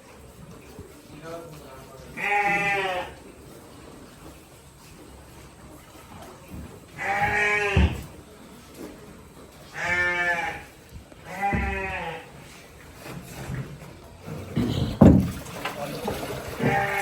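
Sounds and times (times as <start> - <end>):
goats bleating: 2.1 - 3.2, 7.0 - 8.1, 9.7 - 12.4, 16.5 - 17.0.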